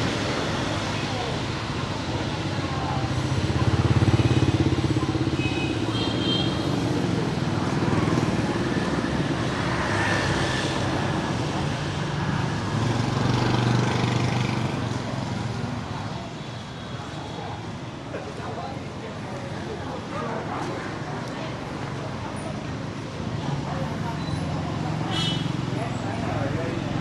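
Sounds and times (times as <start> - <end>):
motorbike engines running: 0.0 - 27.0.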